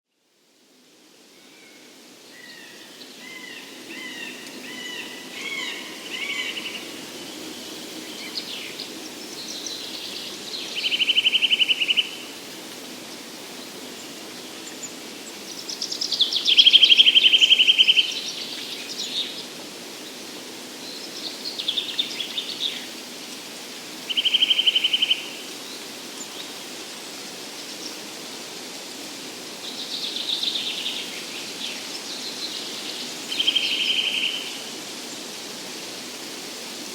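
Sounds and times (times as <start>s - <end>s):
songbirds singing: 1.6s - 12.5s, 13.1s - 23.1s, 29.5s - 35.4s.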